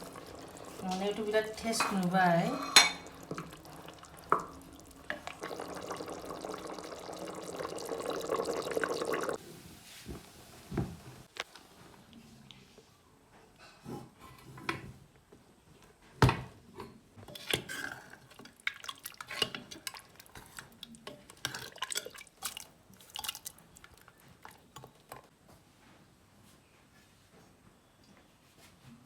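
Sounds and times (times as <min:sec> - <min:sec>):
metal utensil clinking on pot: 0:00.1 - 0:03.6.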